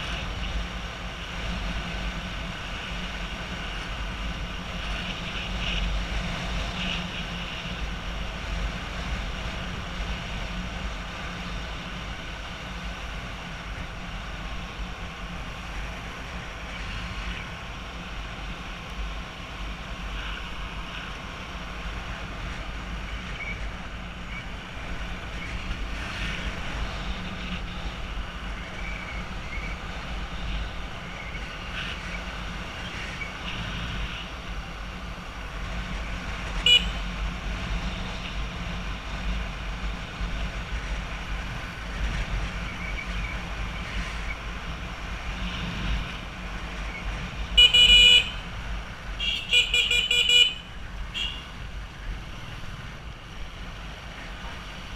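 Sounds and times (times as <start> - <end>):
road traffic rumble: 0.0 - 54.9
vehicle horn honking: 36.6 - 37.0, 47.6 - 48.5, 49.2 - 51.5.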